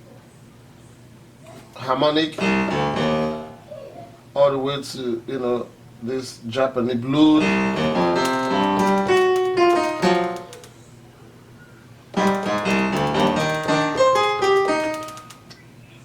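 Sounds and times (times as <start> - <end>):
piano notes: 2.3 - 3.8, 7.2 - 10.7, 12.1 - 15.5.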